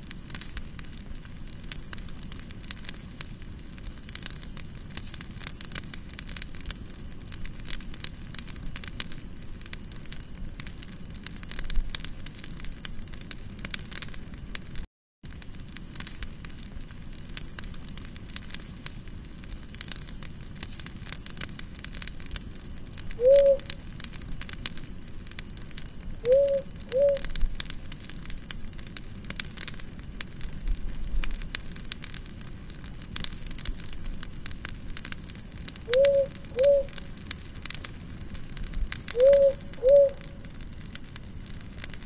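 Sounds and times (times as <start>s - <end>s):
campfire crackling and popping: 0.0s - 42.0s
cricket chirping: 18.2s - 19.3s, 20.6s - 21.4s, 31.8s - 33.4s.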